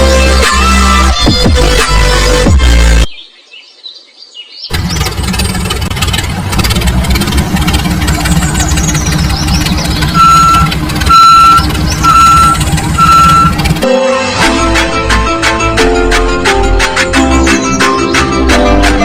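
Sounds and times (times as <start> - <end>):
vehicle engine rumbling: 4.7 - 19.0
reversing alarm beeping: 10.0 - 13.8.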